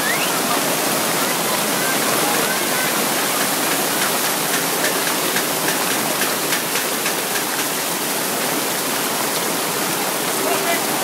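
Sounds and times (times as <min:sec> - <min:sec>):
heavy rain pouring: 0:00.0 - 0:11.0
ticks of raindrops striking: 0:02.3 - 0:08.2.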